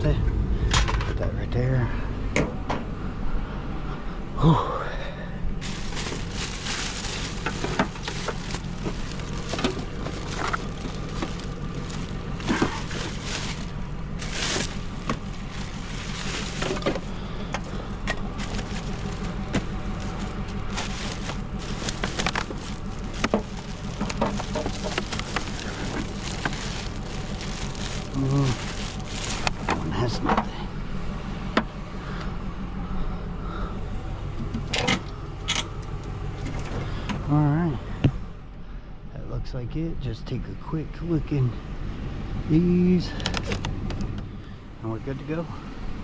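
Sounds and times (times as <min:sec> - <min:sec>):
steady low hum: 0:00.0 - 0:43.1
scrap items clanking and rattling: 0:05.6 - 0:30.6.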